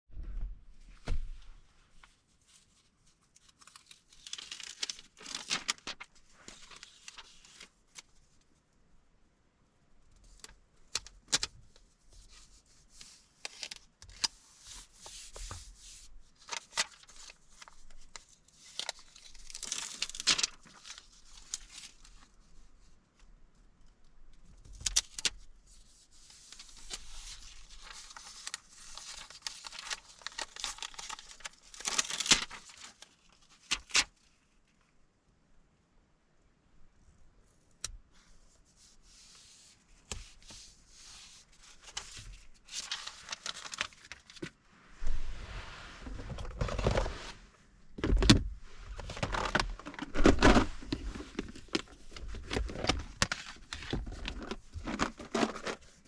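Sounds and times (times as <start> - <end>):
paper rustling and tearing: 3.4 - 7.7, 13.0 - 22.1, 26.2 - 34.1, 38.8 - 45.3, 48.8 - 56.0.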